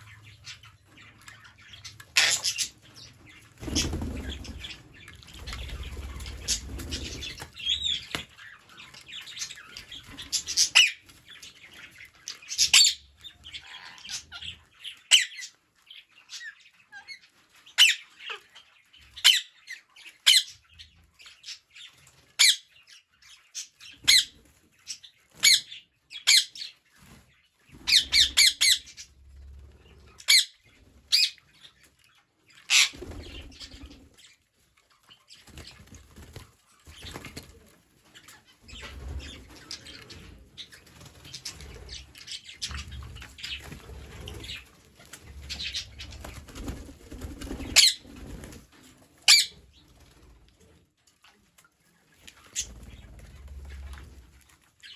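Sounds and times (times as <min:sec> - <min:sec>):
wings flapping and rustling: 0:01.9 - 0:12.8, 0:32.7 - 0:34.2, 0:35.0 - 0:50.8, 0:51.4 - 0:54.9
parrots squawking shrilly: 0:02.2 - 0:02.7.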